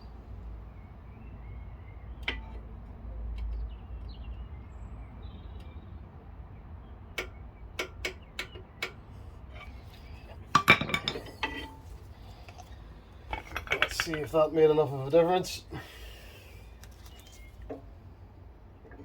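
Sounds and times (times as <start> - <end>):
metal tools clattering: 9.5 - 15.2.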